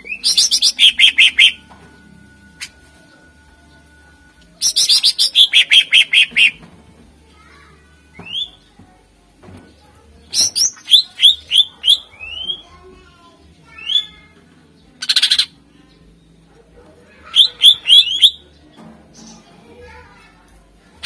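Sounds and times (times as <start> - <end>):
bird singing whistled notes: 0.0 - 1.6, 10.3 - 12.6, 17.3 - 18.4.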